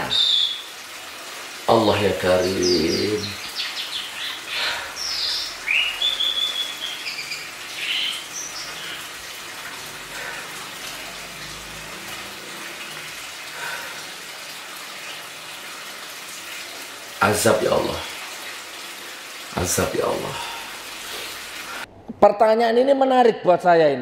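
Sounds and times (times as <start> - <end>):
bird chirping: 2.4 - 9.1.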